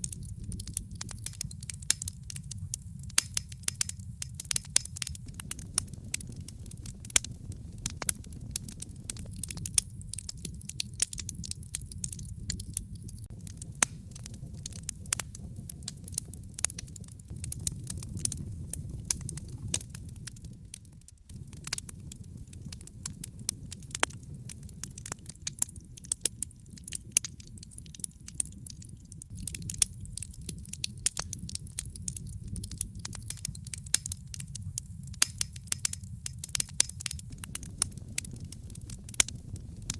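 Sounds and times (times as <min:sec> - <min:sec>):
fire popping and snapping: 0:00.0 - 0:39.9
wood fire crackling: 0:00.0 - 0:39.9
low rumble: 0:05.2 - 0:15.9, 0:17.3 - 0:23.2, 0:29.3 - 0:33.4, 0:37.3 - 0:39.9.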